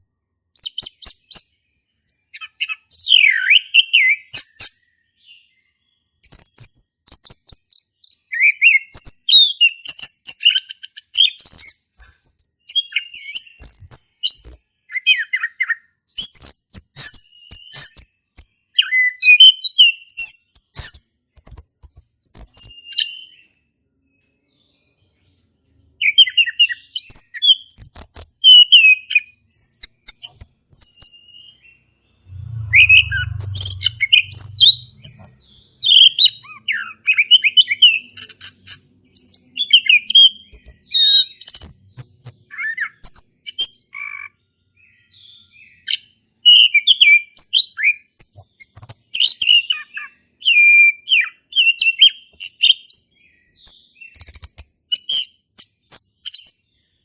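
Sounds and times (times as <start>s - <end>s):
thrush singing: 32.2s - 36.1s.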